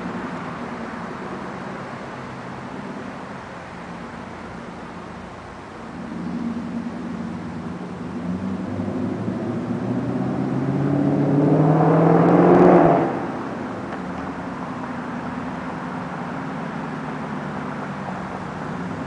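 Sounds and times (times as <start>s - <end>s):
car engine exhaust revving: 5.9s - 19.0s.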